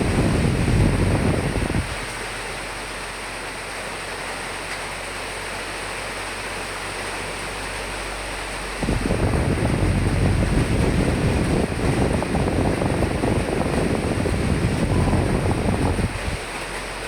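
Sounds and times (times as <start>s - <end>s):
strong wind gust buffeting: 0.0s - 2.3s, 8.8s - 16.6s
rain hiss: 0.0s - 17.0s.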